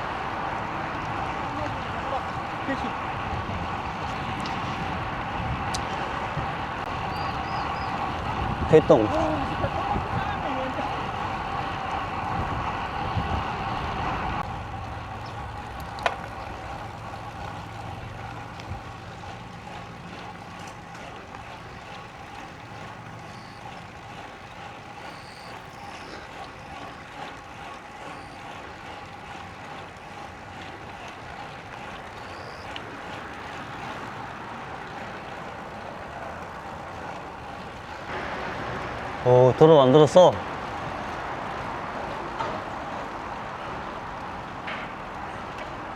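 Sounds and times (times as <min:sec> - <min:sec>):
motor vehicle drone: 0:00.0 - 0:27.0, 0:31.9 - 0:45.9
wind and road noise: 0:00.0 - 0:45.9.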